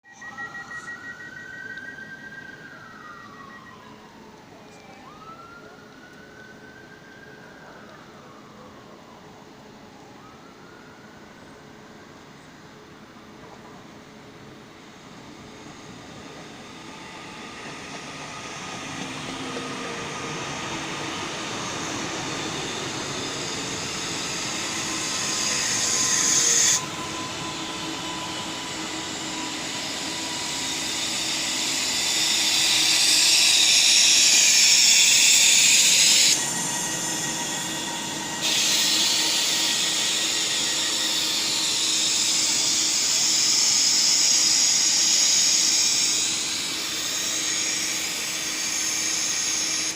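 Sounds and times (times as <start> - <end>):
faint train motor whine: 0.1 - 49.9
train arriving hiss: 11.7 - 49.9.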